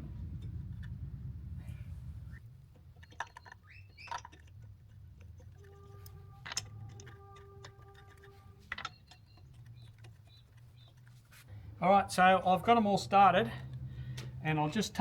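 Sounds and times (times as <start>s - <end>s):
wheel nuts clicking on studs: 2.4s - 11.4s.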